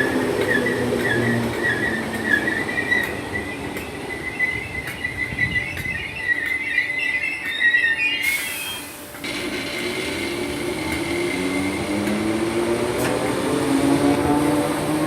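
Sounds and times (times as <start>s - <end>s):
train brakes squealing: 0.0s - 12.4s
electric train humming: 0.0s - 15.0s
air hissing: 8.2s - 12.2s
low rising tones: 9.2s - 15.0s.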